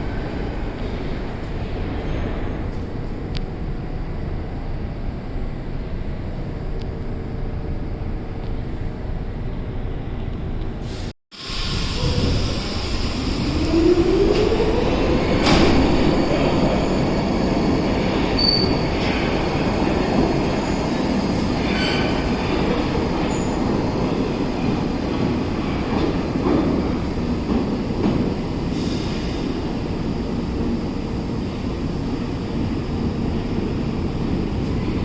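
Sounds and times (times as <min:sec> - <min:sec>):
train wheels rumbling on track: 0:10.2 - 0:35.0
high wheel squeal: 0:16.9 - 0:19.0.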